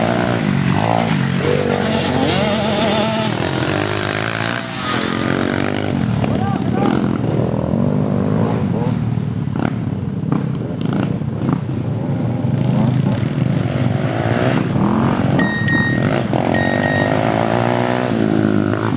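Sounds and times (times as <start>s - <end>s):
motorcycle engines revving: 0.0s - 18.9s
short high-pitched beeps: 15.3s - 17.8s.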